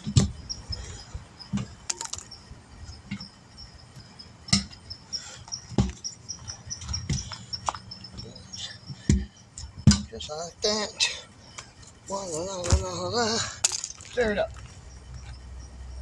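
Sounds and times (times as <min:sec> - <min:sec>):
tools and wheel parts knocking: 0:01.5 - 0:02.4, 0:05.7 - 0:07.8, 0:08.9 - 0:10.2, 0:13.6 - 0:14.7.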